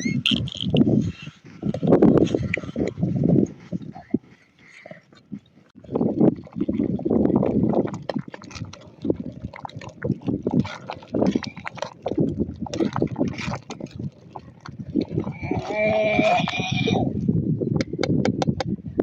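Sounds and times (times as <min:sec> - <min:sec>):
liquid splashing and sloshing: 0:01.5 - 0:17.2.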